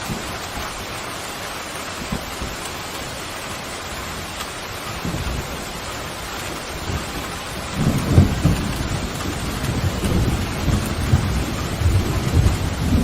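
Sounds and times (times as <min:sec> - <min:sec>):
heavy rain: 0:00.0 - 0:13.0
thunder rumbling: 0:04.1 - 0:13.0.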